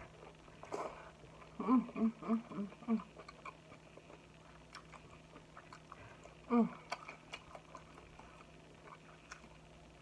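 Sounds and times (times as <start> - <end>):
person chewing with wet smacks: 0.0 - 10.0
person humming: 1.6 - 3.2, 6.5 - 7.0.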